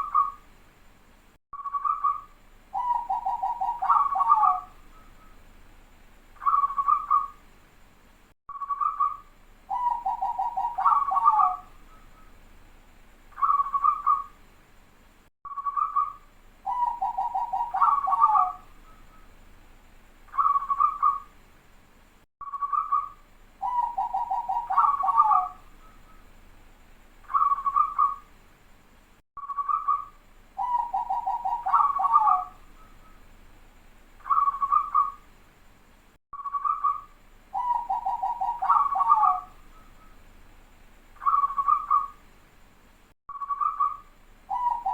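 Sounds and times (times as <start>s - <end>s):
dove cooing: 1.8s - 4.8s, 6.4s - 7.4s, 8.8s - 11.7s, 13.4s - 14.3s, 16.7s - 18.7s, 20.4s - 21.3s, 23.6s - 25.6s, 27.3s - 28.2s, 30.6s - 32.9s, 34.2s - 35.2s, 37.6s - 39.6s, 41.2s - 42.2s, 43.5s - 44.9s.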